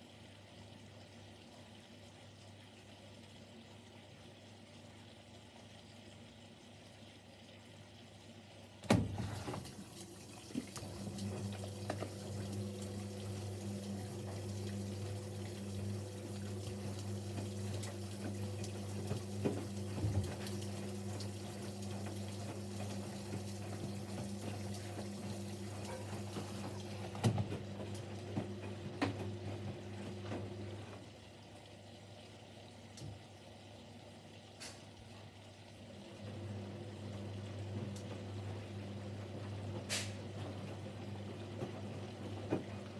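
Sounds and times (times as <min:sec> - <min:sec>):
water running into washing machine: 0:08.2 - 0:42.9
washing machine click: 0:08.8 - 0:12.9.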